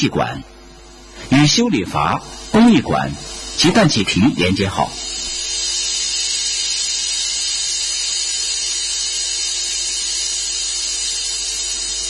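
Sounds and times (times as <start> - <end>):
faint high whine: 0.0 - 12.0
steady hiss: 0.0 - 12.0.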